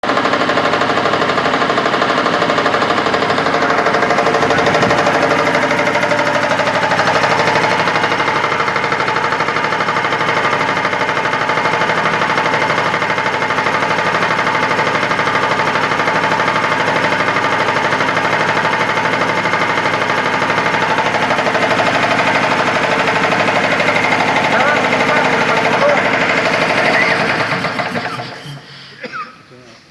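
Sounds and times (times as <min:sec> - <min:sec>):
air compressor running: 0:00.0 - 0:29.5.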